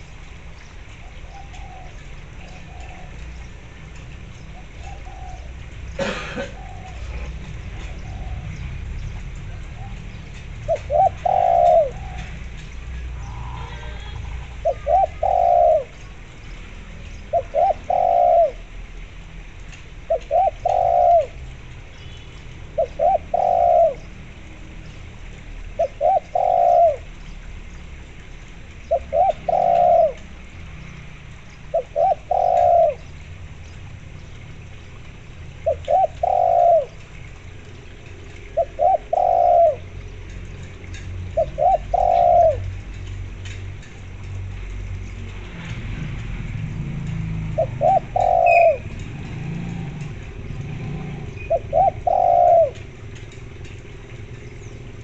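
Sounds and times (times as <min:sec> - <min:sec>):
dove cooing: 0:01.0 - 0:03.7, 0:04.5 - 0:08.9, 0:09.5 - 0:16.4, 0:17.3 - 0:18.8, 0:20.0 - 0:21.6, 0:22.7 - 0:24.6, 0:25.7 - 0:27.2, 0:28.8 - 0:30.5, 0:31.6 - 0:33.2, 0:35.5 - 0:43.0, 0:47.0 - 0:55.0.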